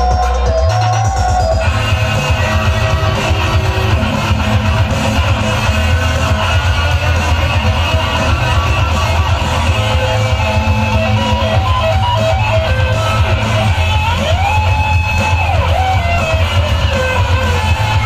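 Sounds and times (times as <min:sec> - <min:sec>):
guitar music with heavy bass: 0:00.0 - 0:18.0.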